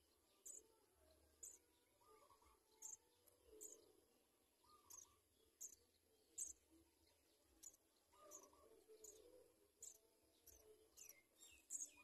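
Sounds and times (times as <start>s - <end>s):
soft low bird calls: 0.0s - 12.0s
high-pitched bird peeps: 4.7s - 5.8s.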